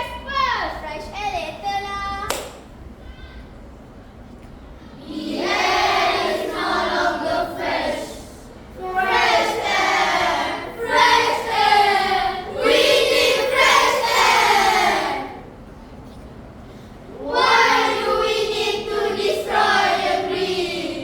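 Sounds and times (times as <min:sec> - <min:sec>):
children singing in unison: 0:05.0 - 0:15.5, 0:17.1 - 0:21.0.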